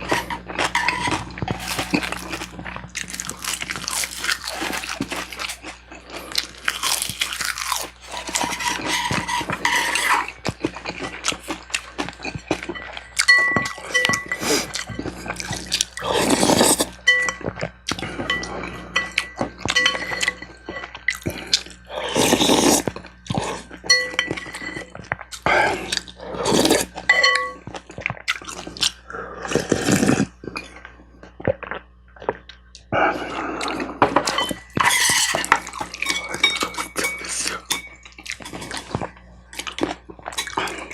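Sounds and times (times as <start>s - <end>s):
chewing and crunching food: 0.0s - 40.9s
cutlery clinking on a dish: 12.7s - 15.2s, 17.1s - 20.9s, 23.8s - 24.9s, 27.1s - 27.7s, 34.0s - 39.0s.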